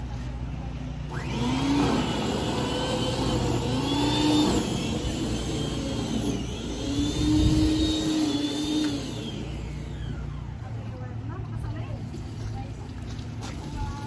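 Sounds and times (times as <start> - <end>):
engine revving: 1.1 - 10.6.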